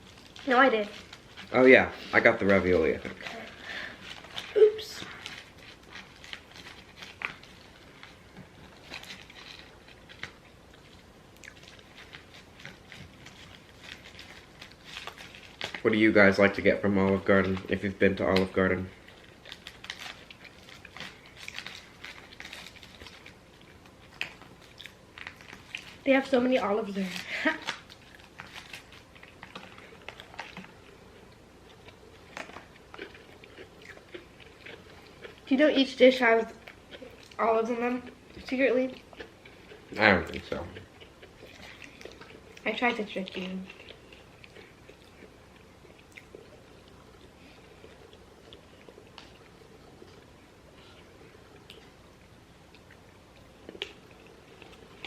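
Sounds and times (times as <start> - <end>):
person chewing food: 0.0 - 26.1, 27.2 - 35.5, 36.4 - 55.0
crunches of eating: 0.0 - 55.0.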